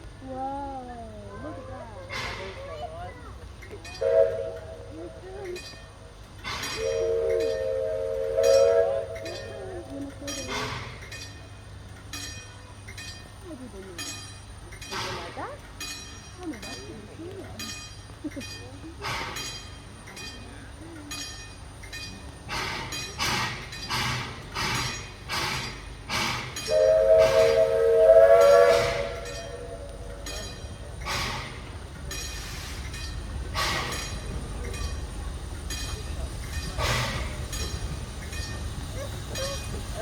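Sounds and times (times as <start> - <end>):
steam locomotive chuffing: 0.0 - 40.0
steam whistle blast: 4.0 - 4.9, 6.8 - 9.4, 26.2 - 30.2.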